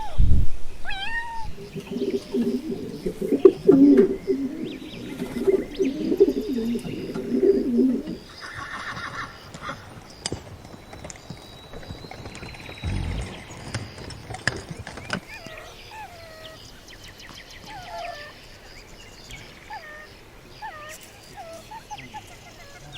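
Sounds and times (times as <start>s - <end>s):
pigeon cooing: 0.9s - 9.8s, 12.8s - 16.6s.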